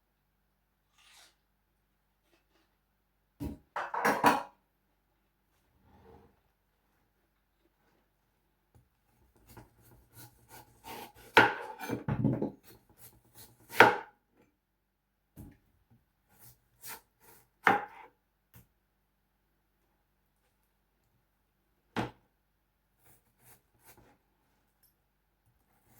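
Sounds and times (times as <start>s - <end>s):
knife chopping on board: 9.4s - 14.1s, 17.6s - 18.1s.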